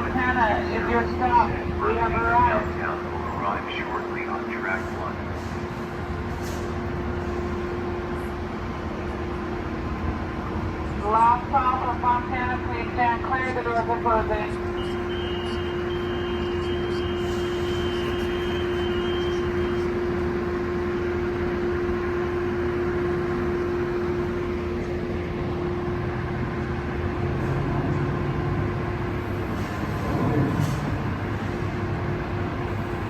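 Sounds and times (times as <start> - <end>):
train mechanical drone: 0.0 - 33.0
deep train engine note: 13.6 - 33.0.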